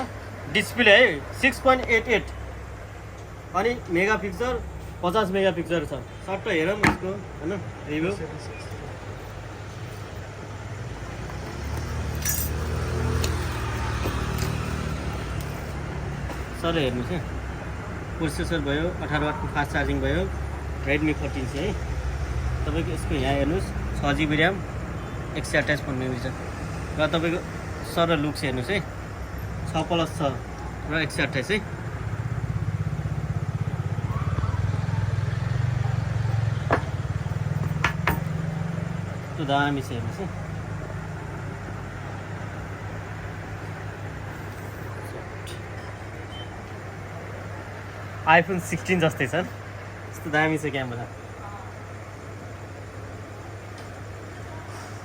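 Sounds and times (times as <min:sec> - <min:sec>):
passing vehicle rumble: 0:00.0 - 0:45.4
light clicks and clinks: 0:11.3 - 0:16.4
vehicle engine running: 0:25.8 - 0:48.2.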